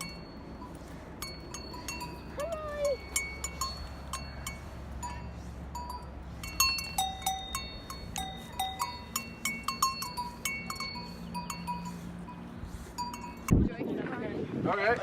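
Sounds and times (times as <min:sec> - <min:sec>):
livestock bells clanking: 0:00.0 - 0:13.5
steady low hum: 0:00.0 - 0:14.6.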